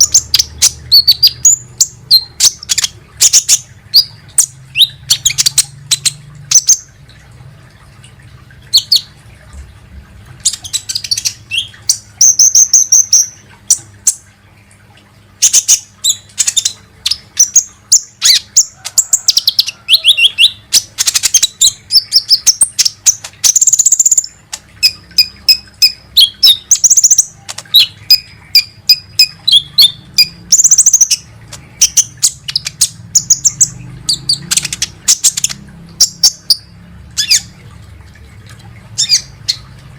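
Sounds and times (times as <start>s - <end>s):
sunbird rapid high-pitched chirps: 0.0s - 6.8s, 19.3s - 37.5s.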